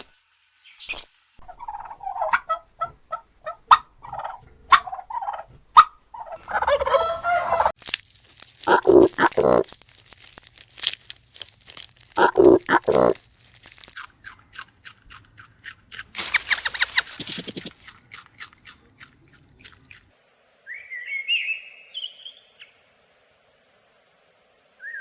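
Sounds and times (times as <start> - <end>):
rapid animal clicks: 14.0 - 20.0
bird chirping call: 20.7 - 22.8, 24.8 - 25.0.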